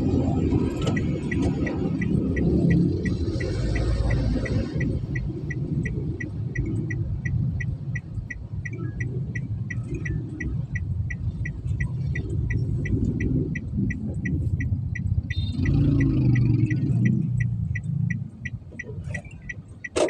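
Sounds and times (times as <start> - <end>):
low steady rumble: 0.0 - 19.8
short high-pitched beeps: 15.2 - 20.0.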